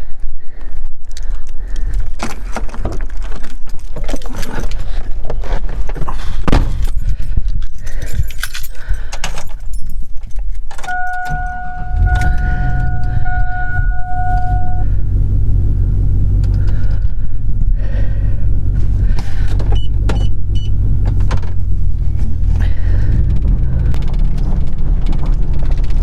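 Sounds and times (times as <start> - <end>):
keys jangling: 6.7 - 14.6
vehicle engine starting: 10.8 - 26.0
steady electronic tone: 10.9 - 16.4.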